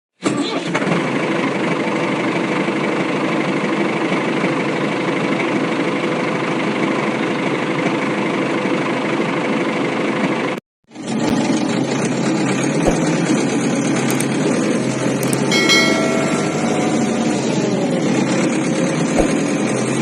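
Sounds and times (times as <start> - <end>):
tractor engine running: 14.1 - 18.1.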